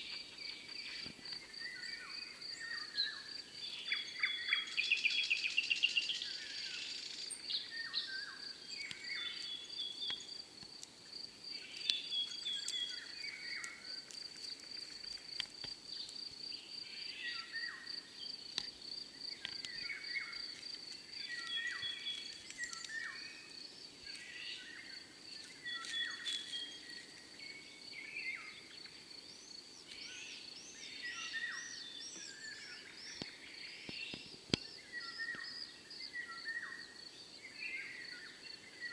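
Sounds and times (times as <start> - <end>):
birds chirping and calling: 19.4 - 23.4.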